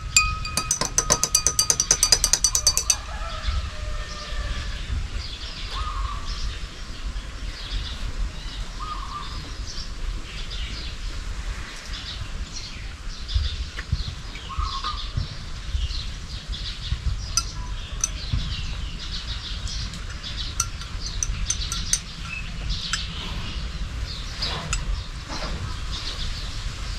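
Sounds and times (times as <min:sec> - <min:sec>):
sharp ticks: 0:00.0 - 0:03.1, 0:20.1 - 0:23.0.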